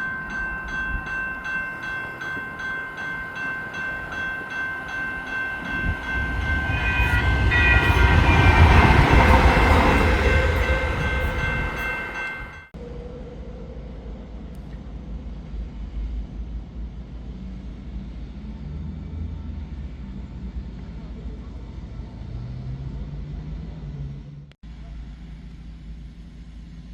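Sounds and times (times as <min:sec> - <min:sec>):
steady high tones: 0:00.0 - 0:12.7
steady low rumble: 0:00.0 - 0:22.3
light rail train passing: 0:00.0 - 0:25.9.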